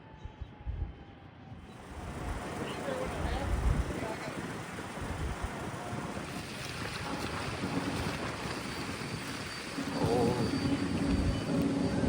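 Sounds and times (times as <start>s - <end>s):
wind rumbling on microphone: 0.2s - 12.0s.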